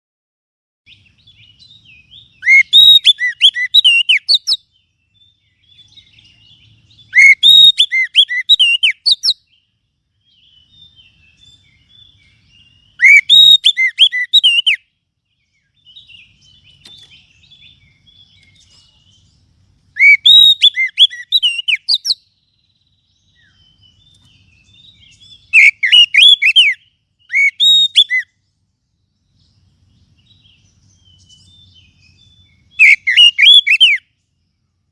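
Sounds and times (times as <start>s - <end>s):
faint bird chirps: 0.9s - 34.9s
magpie-robin calling: 1.3s - 9.6s, 11.4s - 14.8s, 19.9s - 22.3s, 23.3s - 28.4s, 30.6s - 34.1s.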